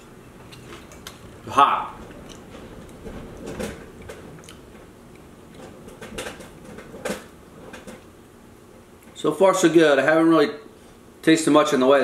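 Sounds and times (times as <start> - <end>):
man chewing fried fish: 0.1 - 1.4, 2.0 - 3.0, 3.9 - 5.6.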